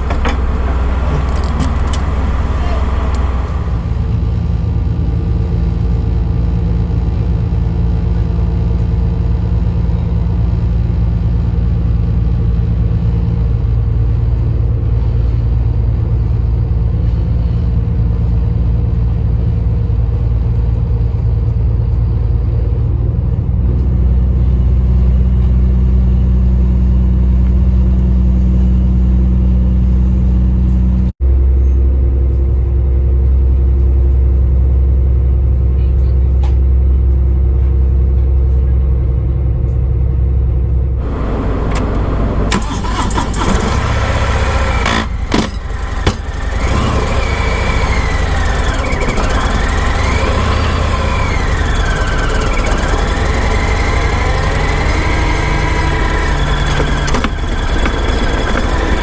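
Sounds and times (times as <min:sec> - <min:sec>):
engine rumble: 0:00.0 - 0:59.0.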